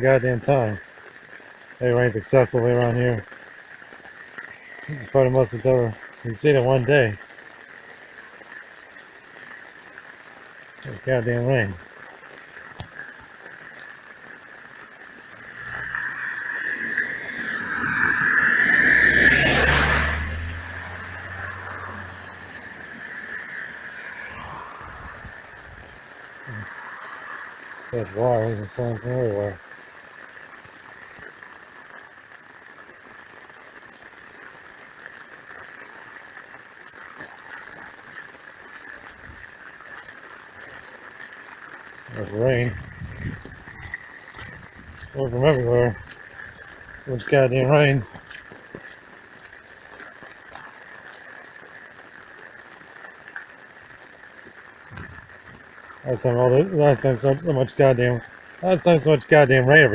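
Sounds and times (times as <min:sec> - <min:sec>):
faint water drips: 0:00.0 - 0:59.8
runoff water flowing: 0:00.0 - 0:59.9
steady rain: 0:00.0 - 0:59.9
tyres hissing on wet road: 0:00.0 - 0:59.9
car engine rumble: 0:15.2 - 0:26.8.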